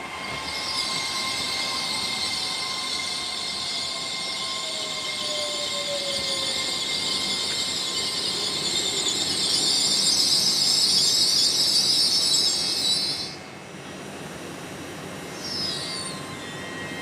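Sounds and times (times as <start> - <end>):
train loud high hissing: 0.0 - 17.0.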